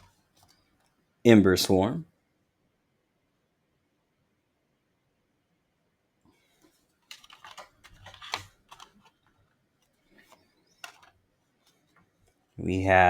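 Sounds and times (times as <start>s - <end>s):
paper cards sliding and rustling: 6.4s - 9.2s, 9.8s - 12.4s.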